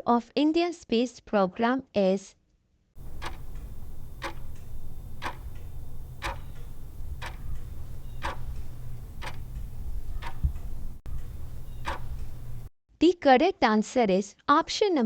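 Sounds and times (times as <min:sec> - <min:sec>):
clock ticking: 0:03.0 - 0:12.7
low steady hum: 0:03.0 - 0:12.7.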